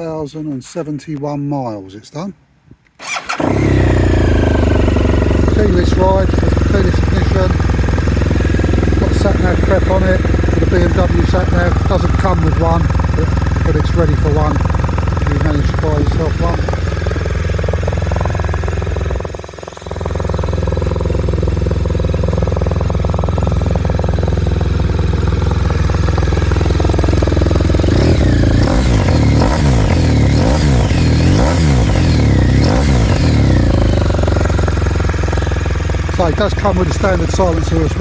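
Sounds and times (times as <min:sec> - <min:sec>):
engine revving blips: 0:03.0 - 0:14.4, 0:26.6 - 0:34.6
motorcycle engine idling: 0:03.1 - 0:38.0.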